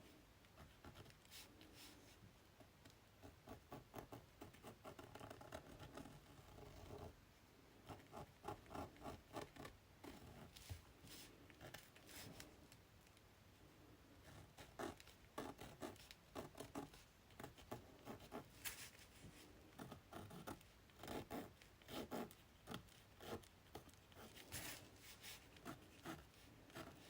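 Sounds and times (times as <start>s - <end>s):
pencil scratching on paper: 3.2s - 7.1s, 14.2s - 27.0s.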